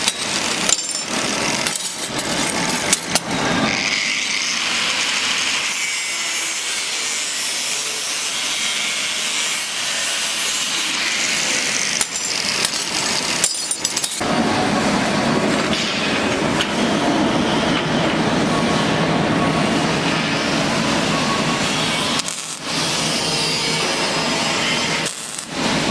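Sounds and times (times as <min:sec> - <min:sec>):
power tool cutting metal: 0:00.0 - 0:14.2, 0:20.0 - 0:25.9.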